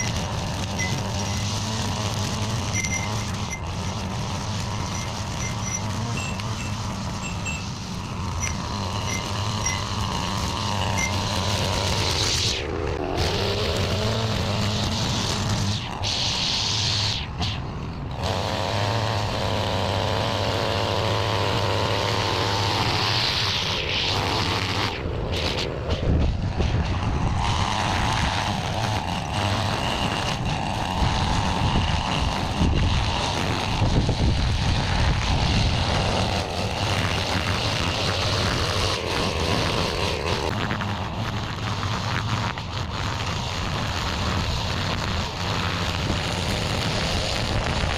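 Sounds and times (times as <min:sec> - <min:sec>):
small gas engine running: 0:00.0 - 0:47.9.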